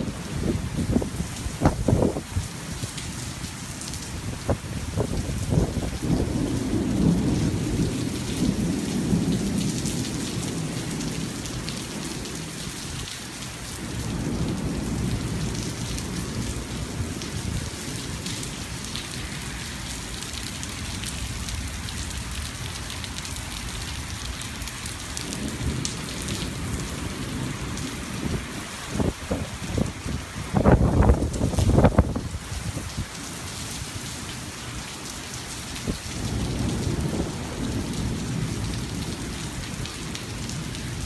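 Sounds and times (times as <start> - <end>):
heavy rain: 0.0 - 41.0
rolling thunder: 4.4 - 12.5, 25.2 - 32.5, 35.9 - 41.0.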